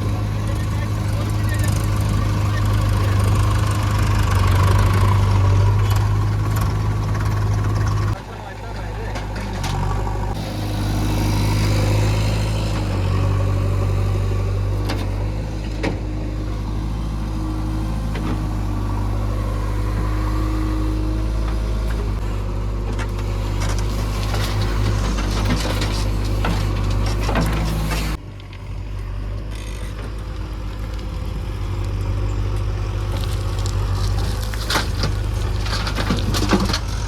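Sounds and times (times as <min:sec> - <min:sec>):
digging knocks and clanks: 0:00.0 - 0:10.4, 0:21.2 - 0:28.2, 0:32.0 - 0:37.0
diesel engine running: 0:00.0 - 0:37.0.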